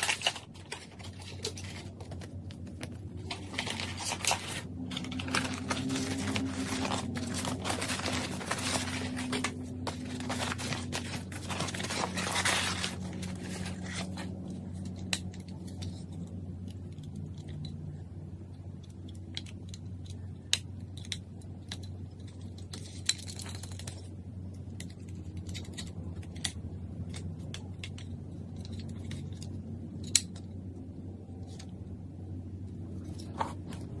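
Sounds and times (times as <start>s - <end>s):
rustling and scraping: 0.0s - 16.3s, 32.6s - 34.0s
steady low hum: 0.0s - 34.0s.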